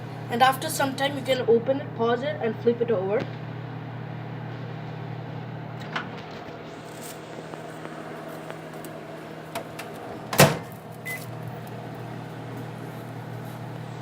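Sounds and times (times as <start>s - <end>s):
microwave oven humming: 0.0s - 14.0s
microwave door shutting knock: 9.6s - 10.7s
microwave door opening click: 9.6s - 10.8s.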